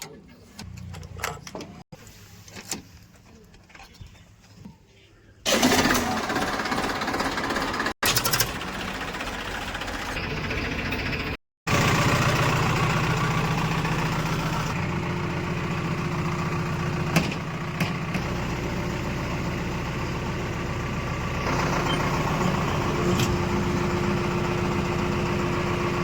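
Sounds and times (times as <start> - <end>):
heavy diesel engine running: 5.5 - 26.0.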